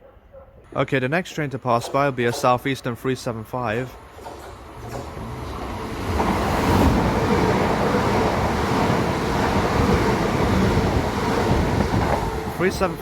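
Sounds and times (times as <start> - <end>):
electric train rushing past: 3.2 - 13.0.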